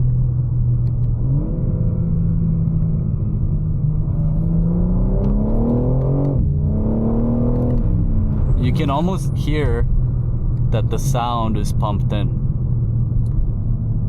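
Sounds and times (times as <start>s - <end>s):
car engine accelerating hard: 0.9s - 9.4s.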